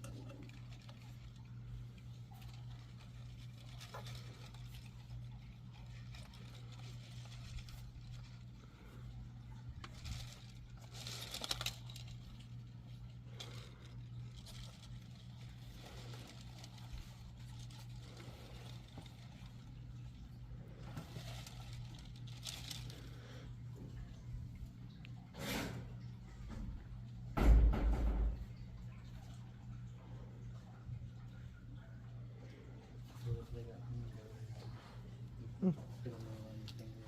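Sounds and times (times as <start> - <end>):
rustling: 0.0 - 25.9
steady low hum: 0.0 - 37.0.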